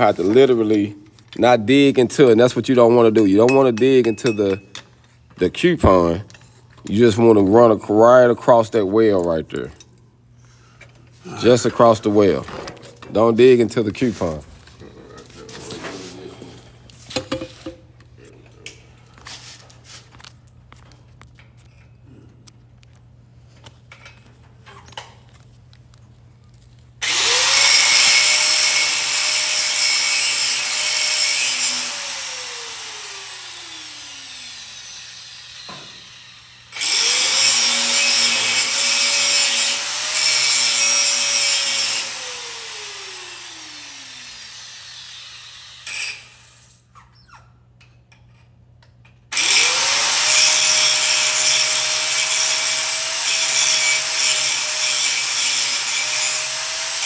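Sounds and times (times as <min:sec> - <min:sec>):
angle grinder grinding metal: 0:27.0 - 0:46.7, 0:49.3 - 0:57.0.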